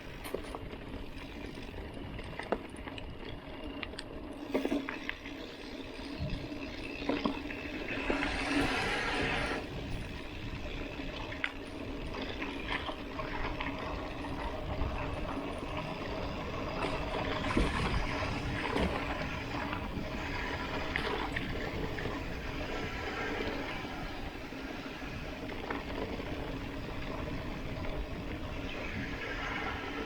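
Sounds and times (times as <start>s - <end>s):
bike clicks and rattles: 0.0s - 30.0s
bike tyres rumbling on dirt: 0.0s - 30.0s
wind on microphone: 7.7s - 11.2s, 12.0s - 30.0s.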